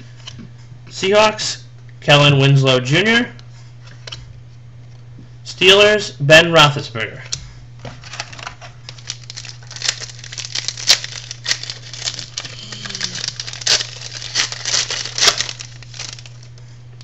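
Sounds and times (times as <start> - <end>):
wrapper crinkling and tearing: 8.0 - 16.6.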